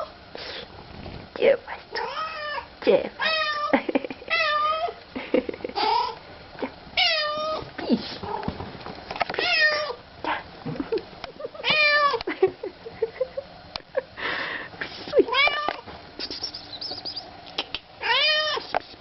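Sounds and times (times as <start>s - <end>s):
cat meowing: 2.0s - 3.7s, 9.4s - 10.0s, 18.0s - 18.7s.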